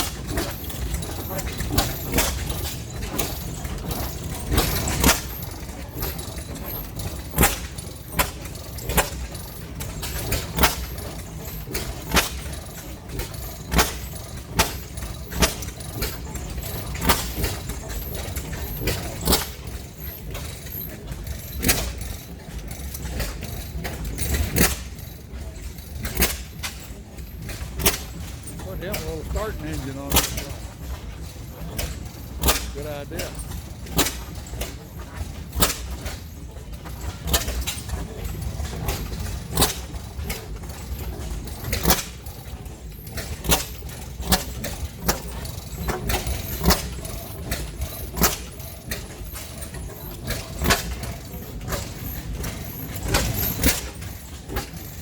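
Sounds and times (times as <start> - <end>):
old engines exhaust popping: 0.0 - 55.0
low engine rumble: 28.4 - 31.1, 32.2 - 33.6.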